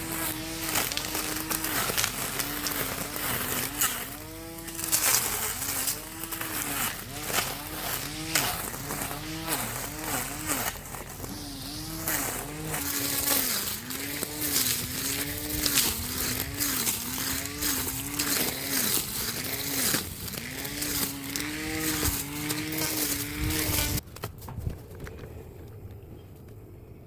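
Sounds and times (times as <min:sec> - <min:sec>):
grass cutter motor whining: 0:00.0 - 0:24.0
sharp ticks from cutting: 0:00.0 - 0:24.0.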